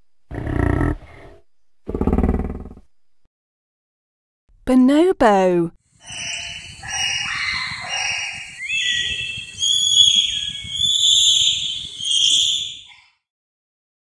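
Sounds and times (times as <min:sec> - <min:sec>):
bonobos shrill calls: 0:06.0 - 0:13.0.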